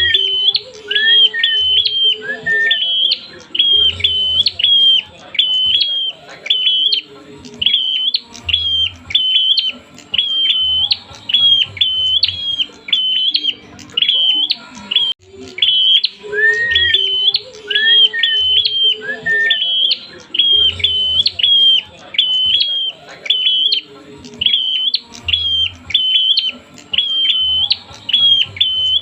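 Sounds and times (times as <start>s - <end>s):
bird chirping sharply: 0.0s - 29.0s.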